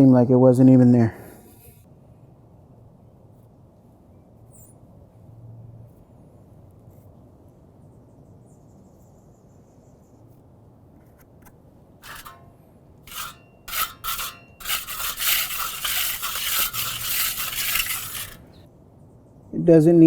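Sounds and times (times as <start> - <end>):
hand tool scraping concrete: 12.0 - 18.6.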